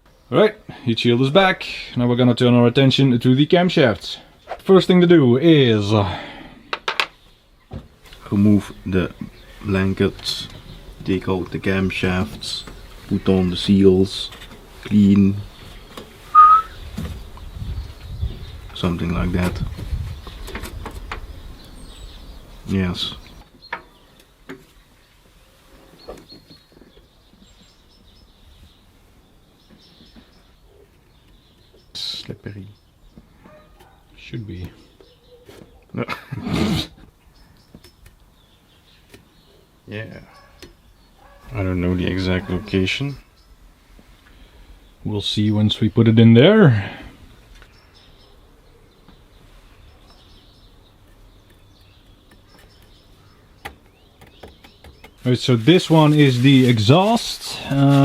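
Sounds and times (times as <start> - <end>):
faint high chirps: 16.3 - 16.8
faint bird chirps: 16.3 - 18.6.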